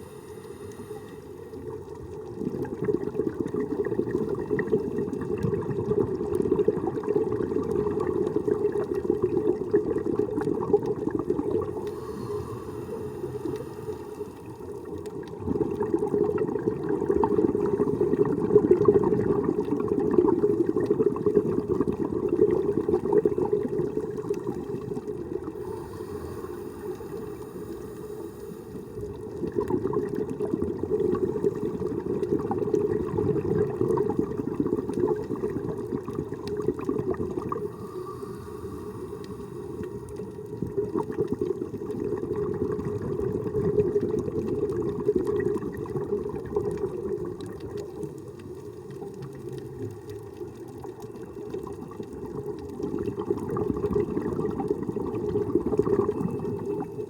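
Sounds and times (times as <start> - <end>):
underwater exhaust bubbles: 0.0 - 57.0.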